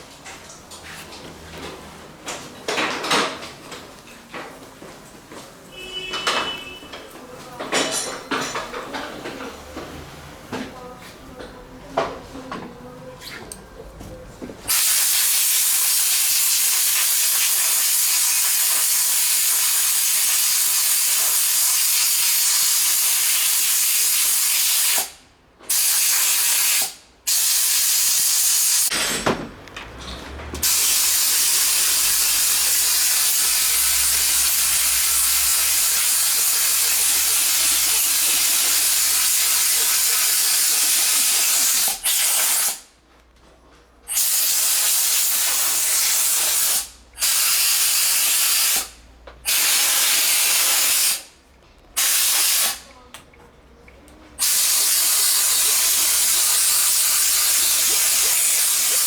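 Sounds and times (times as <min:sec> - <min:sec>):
hiss of pressurised jet: 0:14.7 - 0:28.9, 0:52.0 - 0:52.9, 0:54.4 - 0:59.0.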